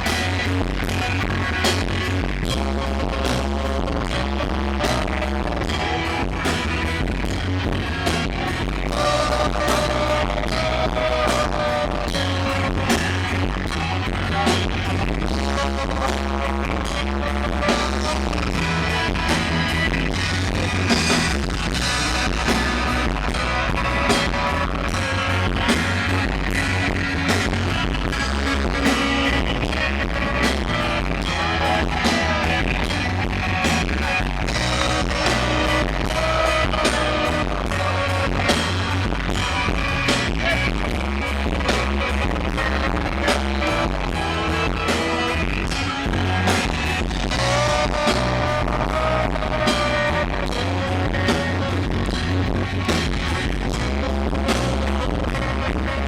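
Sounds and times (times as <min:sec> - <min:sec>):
guitar: 0:00.0 - 0:56.0
steady drum beat: 0:00.0 - 0:56.0
person singing: 0:08.8 - 0:19.7, 0:27.7 - 0:52.4.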